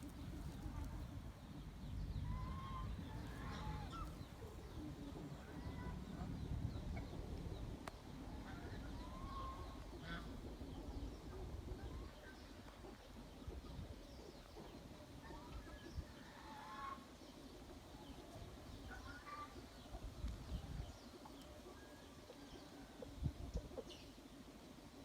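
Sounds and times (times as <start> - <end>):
wind rumbling on microphone: 20.0 - 21.1.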